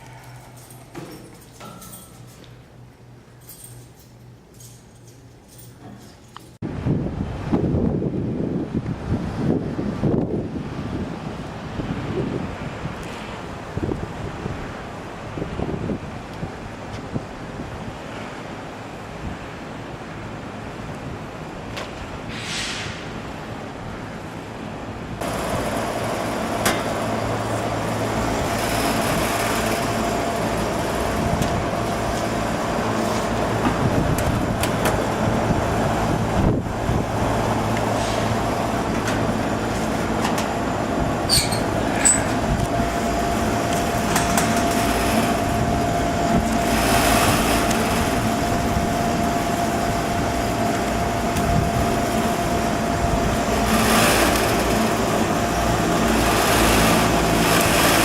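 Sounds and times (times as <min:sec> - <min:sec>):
hvac unit mechanical drone: 0:00.0 - 0:58.0
constant whine: 0:23.3 - 0:58.0.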